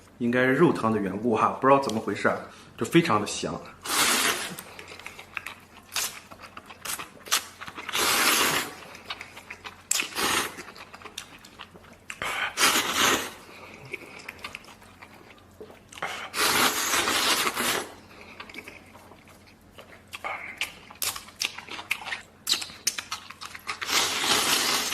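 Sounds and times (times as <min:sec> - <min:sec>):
noodles slurped: 0:03.8 - 0:04.8
chewing: 0:04.5 - 0:12.7, 0:13.5 - 0:16.2, 0:17.2 - 0:24.9.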